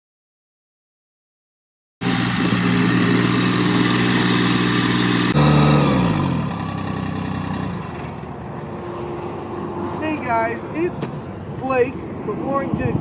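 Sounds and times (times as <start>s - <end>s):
tractor engine running: 2.0s - 8.8s.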